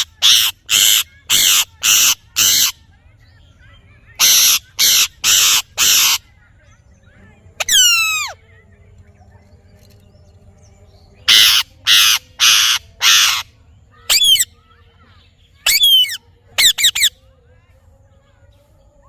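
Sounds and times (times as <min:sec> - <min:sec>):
parrot harsh screeches: 0:00.0 - 0:02.7, 0:04.2 - 0:06.2, 0:07.6 - 0:08.4, 0:11.3 - 0:13.4
parrot short shrill calls: 0:00.0 - 0:02.7, 0:04.2 - 0:06.2, 0:07.6 - 0:08.4, 0:11.3 - 0:13.4, 0:14.1 - 0:14.5, 0:15.6 - 0:17.1.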